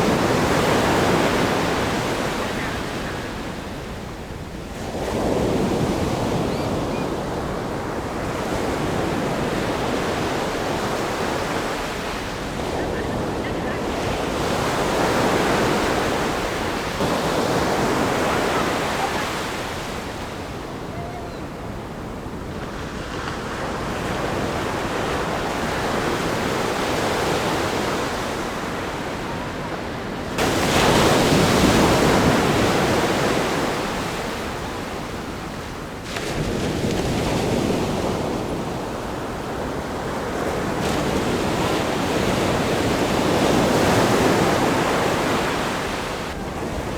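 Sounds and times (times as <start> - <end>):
surf on beach: 0.0 - 46.9
waves crashing on rocks: 30.4 - 34.2.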